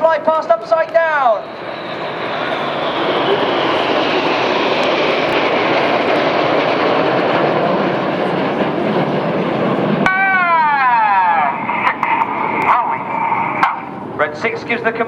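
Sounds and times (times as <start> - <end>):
jet engine whine: 0.0 - 15.0
jet roar: 0.0 - 15.0.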